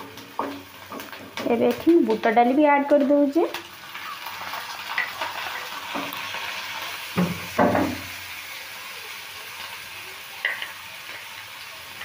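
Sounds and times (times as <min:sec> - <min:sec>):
wooden spatula knocking wok: 0:00.0 - 0:03.7, 0:05.9 - 0:06.2, 0:07.2 - 0:08.1
food frying in hot oil: 0:00.0 - 0:12.0.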